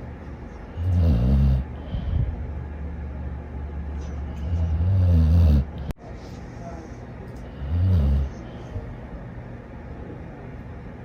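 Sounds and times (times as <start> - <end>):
dog snoring: 0.8 - 2.0, 4.4 - 5.9, 7.5 - 8.5
low breathing: 1.6 - 2.7.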